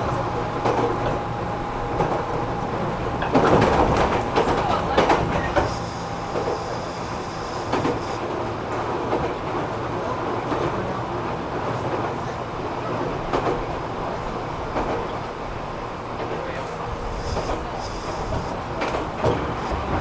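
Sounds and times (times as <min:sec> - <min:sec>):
rail joints clacking: 0:00.0 - 0:20.0
train wheels rumbling on rail: 0:00.0 - 0:20.0
traction motor hum: 0:05.4 - 0:08.2.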